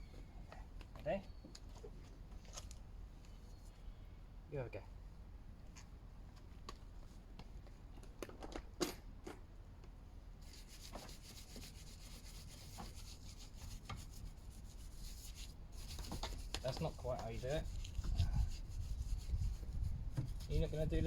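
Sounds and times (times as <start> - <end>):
scrubbing strokes on a car: 10.4 - 21.0.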